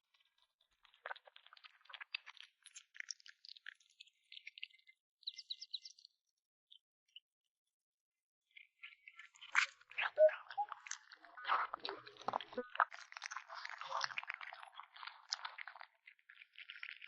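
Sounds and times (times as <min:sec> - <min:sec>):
kitten crunching food: 0:12.2 - 0:17.0.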